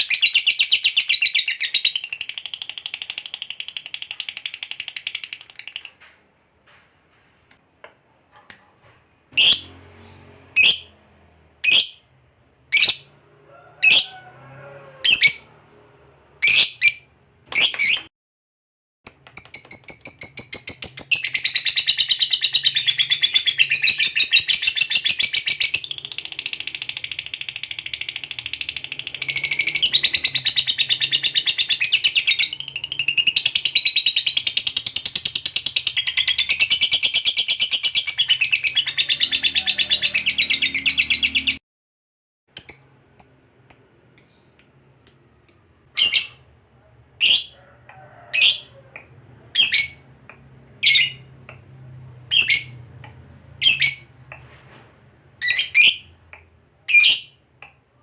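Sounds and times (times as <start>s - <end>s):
bird chirps: 0.0s - 6.1s, 19.1s - 41.6s, 42.6s - 46.5s.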